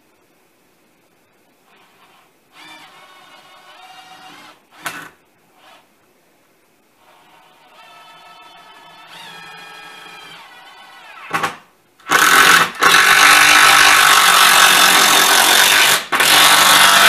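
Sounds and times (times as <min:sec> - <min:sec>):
power driver driving screw into wood: 0:09.0 - 0:17.0.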